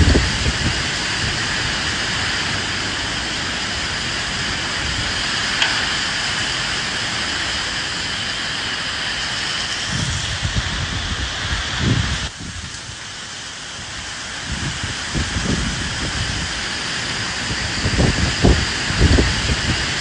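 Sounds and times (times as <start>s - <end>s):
low rumbling wind: 0.0s - 20.0s
steady rain hissing: 0.0s - 20.0s
sharp tick: 5.6s - 6.0s.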